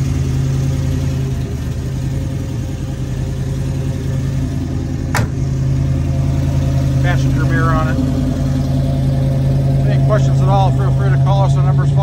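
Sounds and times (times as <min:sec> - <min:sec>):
car engine idling: 0:00.0 - 0:12.0
sharp engine knock: 0:05.1 - 0:05.4.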